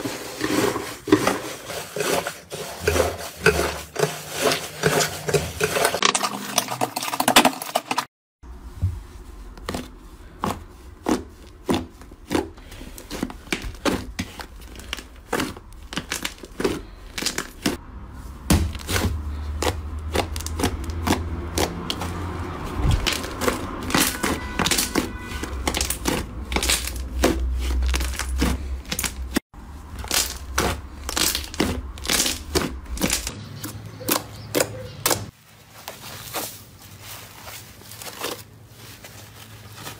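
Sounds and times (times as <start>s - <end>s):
slime crackling and popping: 30.0s - 33.3s.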